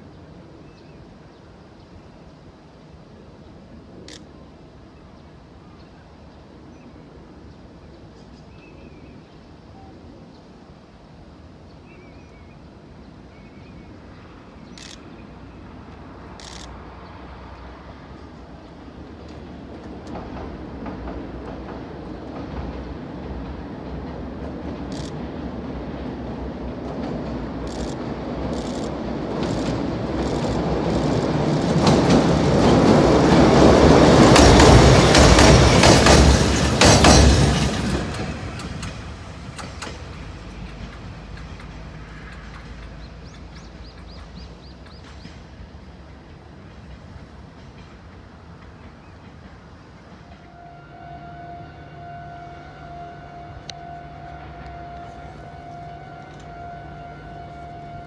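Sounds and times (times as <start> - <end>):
freight train passing: 0.0 - 58.0
wheels clicking over rail joints: 19.2 - 50.5
steady tonal drone: 50.6 - 58.0.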